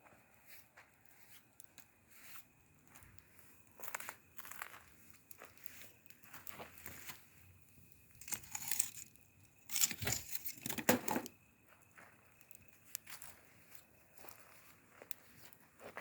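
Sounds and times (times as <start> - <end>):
dry rustling and crunching: 8.1 - 11.4.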